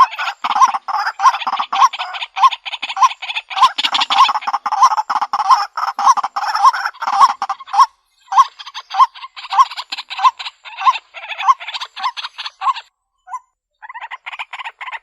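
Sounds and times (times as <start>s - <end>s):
waterhen harsh calls: 0.0s - 15.0s.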